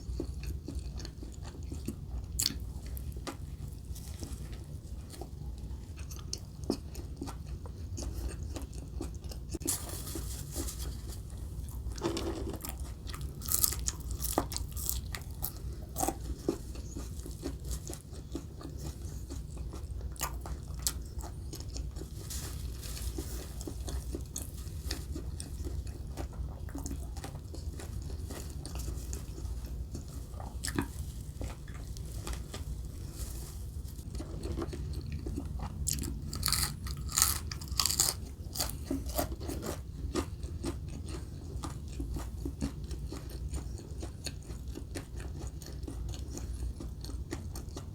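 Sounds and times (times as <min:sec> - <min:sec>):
chewing: 0:00.0 - 0:09.8, 0:10.5 - 0:47.9
crunchy bites: 0:34.2 - 0:41.2.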